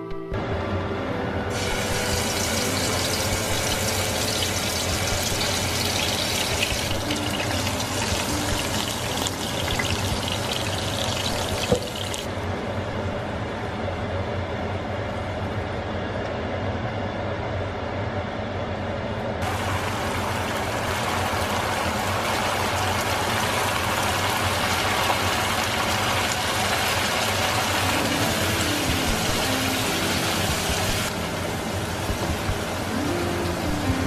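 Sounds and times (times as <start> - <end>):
onion masala sizzling in oil: 1.5 - 12.3, 19.4 - 31.2
low hum: 27.7 - 34.0.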